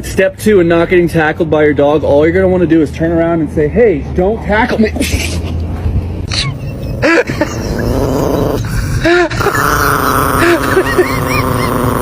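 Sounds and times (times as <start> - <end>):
dog growling: 7.0 - 12.0.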